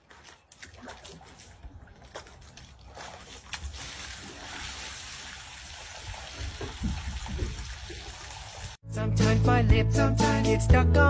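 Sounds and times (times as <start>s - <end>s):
running water: 0.0s - 8.8s
water sloshing and splashing: 0.0s - 8.8s.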